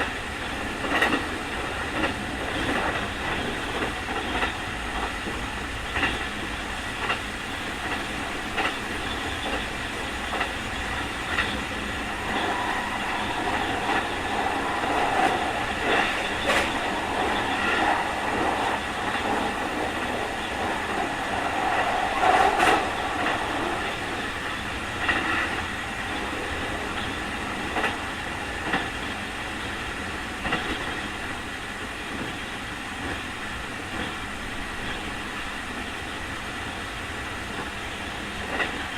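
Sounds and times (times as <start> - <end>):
train rumble: 0.0 - 38.9
faint high whine: 10.9 - 24.8.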